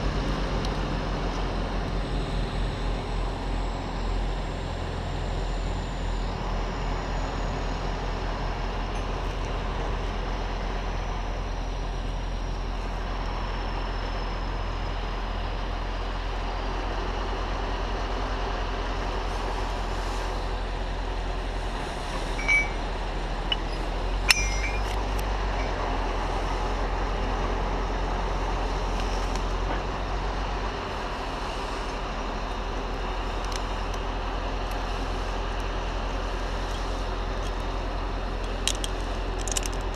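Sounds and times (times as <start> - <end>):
large diesel engine running: 0.0 - 39.9
sharp metallic clicks: 23.5 - 25.3.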